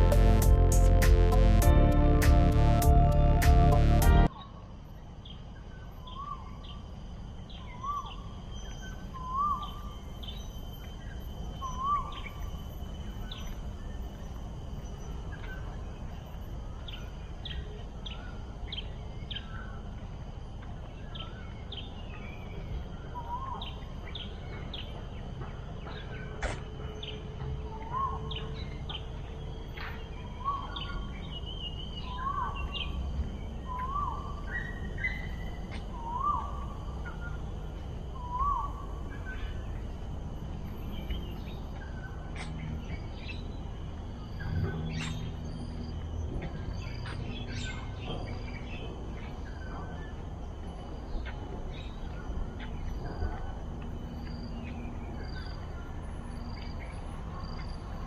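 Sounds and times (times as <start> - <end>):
steady low rumble: 0.0 - 4.3
wild birds calling: 25.9 - 40.0.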